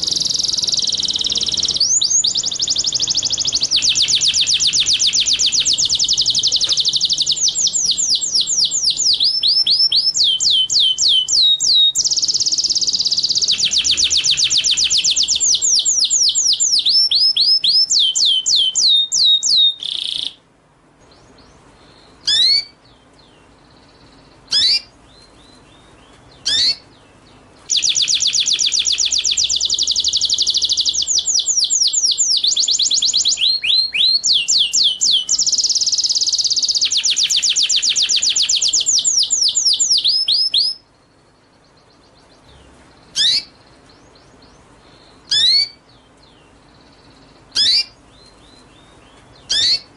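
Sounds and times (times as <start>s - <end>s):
sharp whistled bird notes: 0.0s - 20.4s, 22.2s - 22.8s, 24.5s - 24.9s, 26.4s - 26.8s, 27.7s - 40.8s, 43.2s - 43.6s, 45.2s - 45.8s, 47.5s - 48.0s, 49.4s - 49.9s
songbird trilling: 0.0s - 20.4s, 21.1s - 49.9s.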